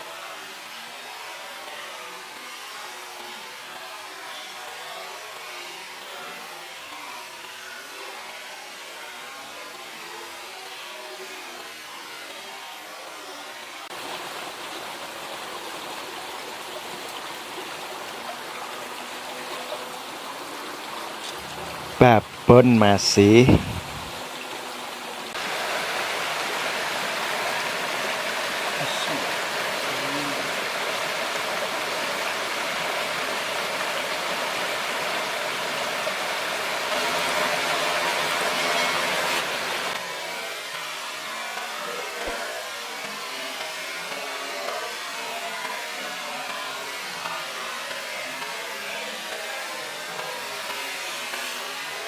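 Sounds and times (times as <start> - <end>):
river water rushing: 14.0 - 40.2
engine-like hum: 21.2 - 22.5.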